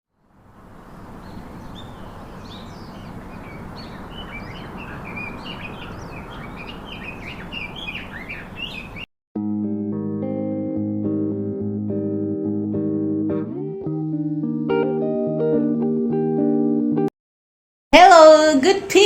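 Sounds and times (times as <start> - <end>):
outdoor background hiss: 0.2 - 9.0
birds chirping: 0.6 - 9.1.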